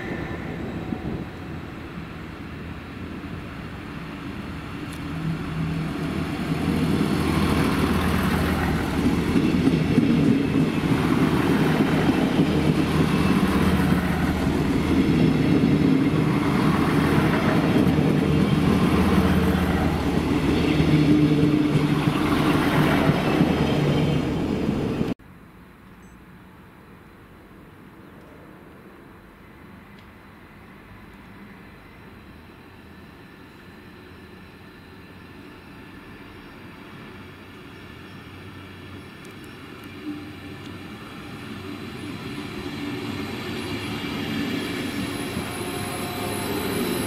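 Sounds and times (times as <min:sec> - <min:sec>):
train diesel engine: 0:00.0 - 0:25.2, 0:28.4 - 0:47.0
train wheels rumbling on rails: 0:00.0 - 0:25.2, 0:29.5 - 0:47.0.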